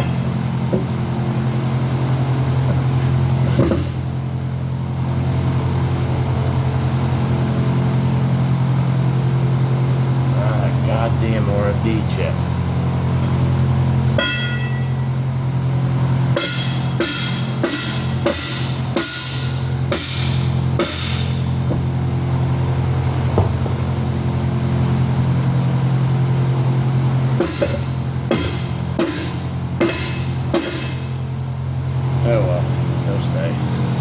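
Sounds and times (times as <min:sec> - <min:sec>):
low hum: 0:00.0 - 0:34.0
hammer clanging on steel: 0:14.2 - 0:15.0, 0:16.4 - 0:21.4, 0:27.4 - 0:31.1.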